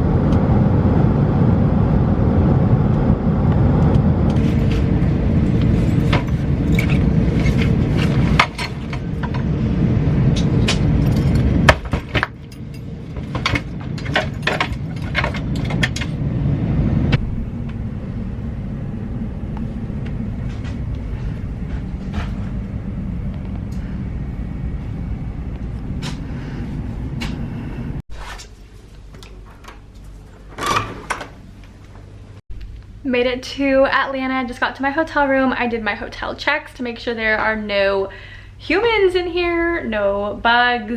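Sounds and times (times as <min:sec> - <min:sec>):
vehicle engine rumbling: 0:00.0 - 0:33.0
sharp clicks and rattles: 0:10.3 - 0:16.2.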